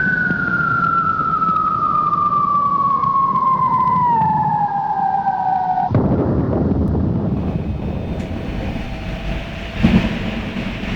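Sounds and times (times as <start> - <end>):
electric train motor whine: 7.0 - 10.9
running train rumble: 7.0 - 10.9.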